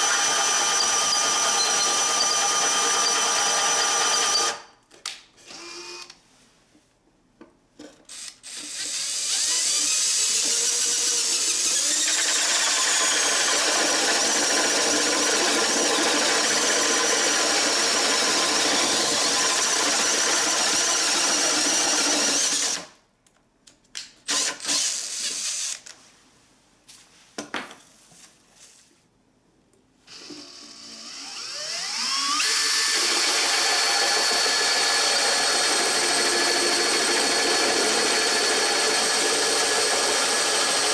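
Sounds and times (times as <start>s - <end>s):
cordless drill motor whine: 0.0s - 4.6s, 5.5s - 6.1s, 30.1s - 40.9s
drill trigger bursts: 0.0s - 4.6s, 8.1s - 22.9s, 24.3s - 25.8s, 30.2s - 40.9s.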